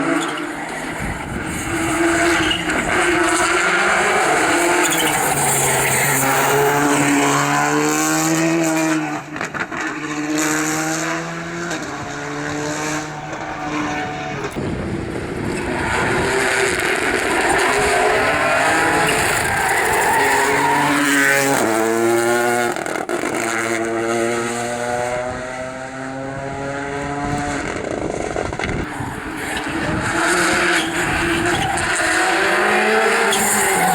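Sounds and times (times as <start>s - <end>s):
tyre noise: 0.0s - 8.1s, 11.7s - 22.0s, 26.9s - 33.9s
rally car engines revving: 0.0s - 33.9s.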